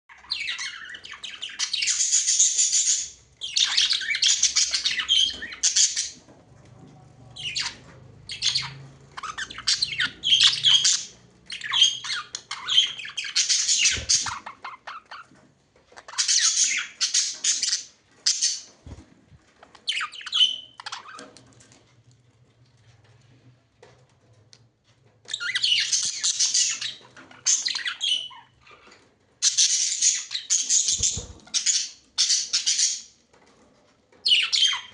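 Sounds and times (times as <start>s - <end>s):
budgerigars chattering and squawking: 0.1s - 6.2s, 7.4s - 15.3s, 16.1s - 18.7s, 25.3s - 33.1s.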